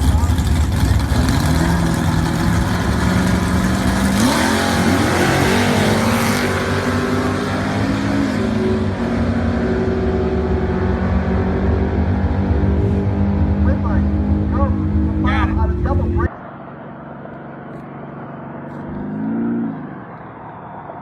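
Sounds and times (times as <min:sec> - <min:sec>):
hot rod engine revving: 0:00.0 - 0:16.3.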